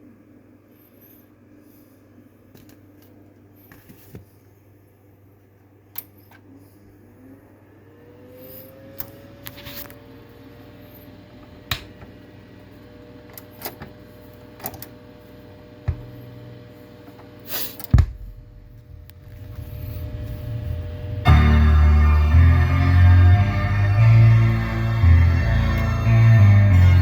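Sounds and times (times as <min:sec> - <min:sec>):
heavy thump: 0:17.9 - 0:23.4
low rumble: 0:18.0 - 0:27.0.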